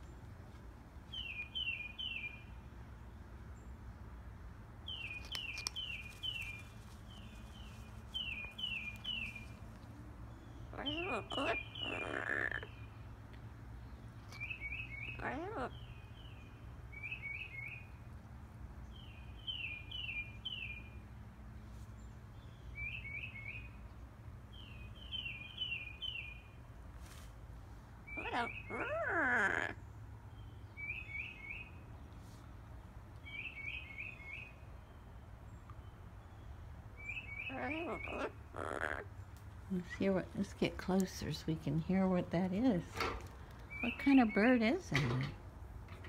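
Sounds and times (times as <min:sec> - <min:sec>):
songbird chirping: 0:00.0 - 0:04.1, 0:04.8 - 0:27.2, 0:28.0 - 0:46.0
parrot calling: 0:10.7 - 0:12.7, 0:15.0 - 0:15.8, 0:28.1 - 0:29.8, 0:37.0 - 0:39.2.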